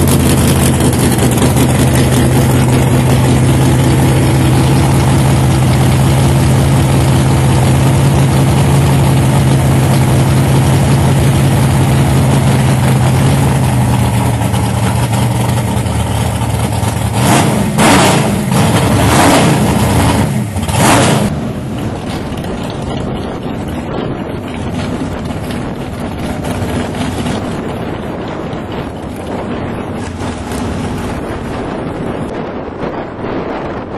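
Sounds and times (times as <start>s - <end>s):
race car engine idling: 0.0s - 33.8s
race car engine revving: 0.0s - 33.8s
wind on microphone: 20.6s - 33.9s.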